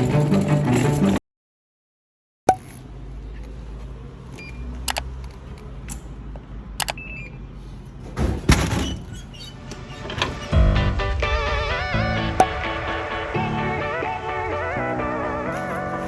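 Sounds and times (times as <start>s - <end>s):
sharp clicks: 4.9s - 5.1s, 6.8s - 7.0s.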